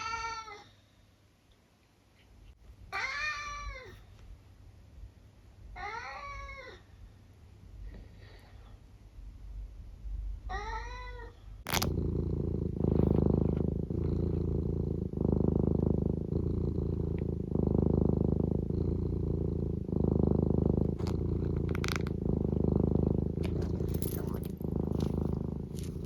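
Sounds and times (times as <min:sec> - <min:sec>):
cat meowing: 0:02.9 - 0:04.0
cat purring: 0:10.5 - 0:26.0.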